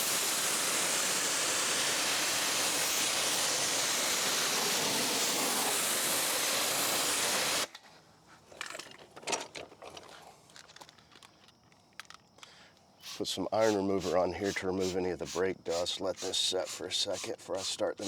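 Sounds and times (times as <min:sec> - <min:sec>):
pressure washer spraying water: 0:00.0 - 0:07.7, 0:13.0 - 0:17.8
faint clicks and knocks: 0:08.5 - 0:12.9.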